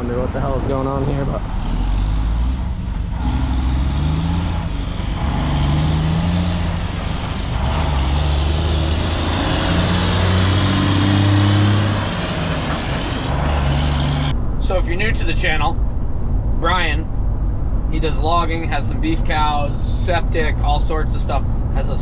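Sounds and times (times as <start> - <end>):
heavy diesel engine running: 0.0 - 14.3.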